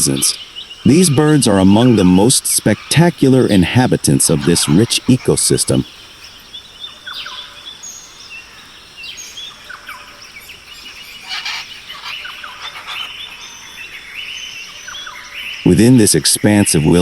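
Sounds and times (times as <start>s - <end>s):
harsh bird call: 0.0s - 7.9s, 10.4s - 15.8s
birds chirping and whistling: 0.0s - 17.0s.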